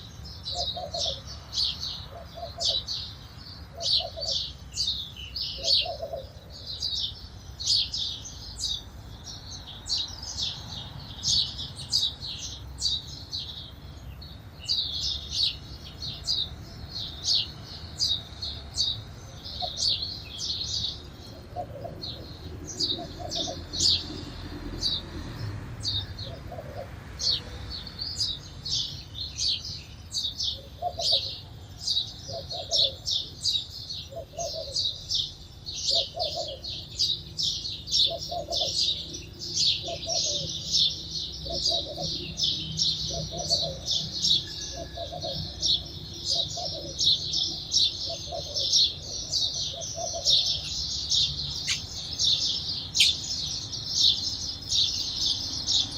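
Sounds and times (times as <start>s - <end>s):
sparrows chirping: 0.0s - 55.9s
short low bird calls: 48.0s - 54.1s.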